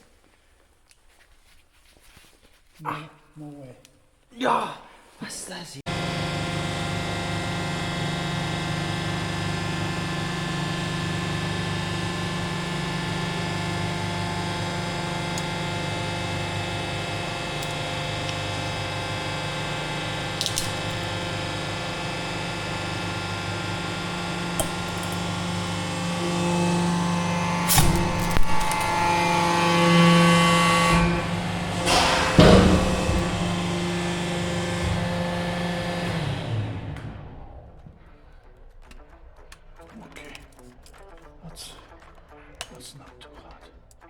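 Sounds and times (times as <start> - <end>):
hydraulic pump motor humming: 5.9 - 37.7.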